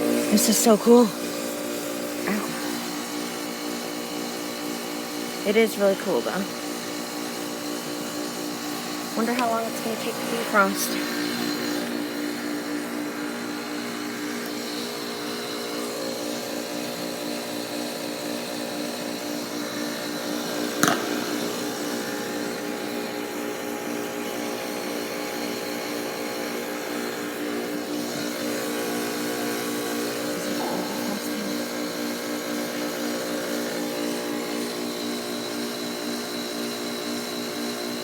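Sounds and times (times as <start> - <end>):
heat pump compressor hum: 0.0 - 38.0.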